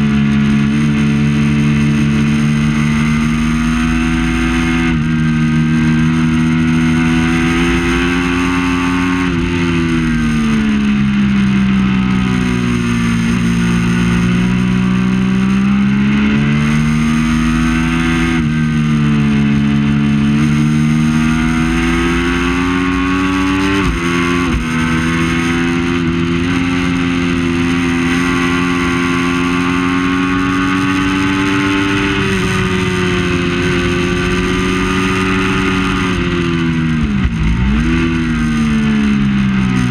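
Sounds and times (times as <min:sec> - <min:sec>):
motorcycle engine racing: 0:00.0 - 0:39.9.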